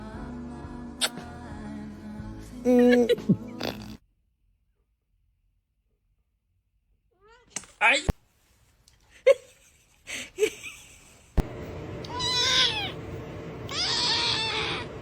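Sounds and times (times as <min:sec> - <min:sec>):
cat meowing: 0:12.1 - 0:13.0, 0:13.7 - 0:14.9.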